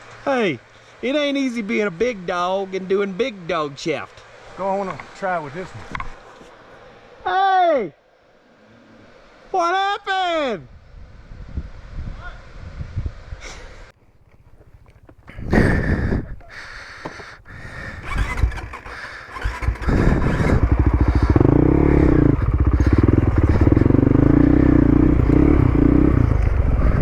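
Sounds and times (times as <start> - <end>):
motorcycle engine running: 17.8 - 27.0.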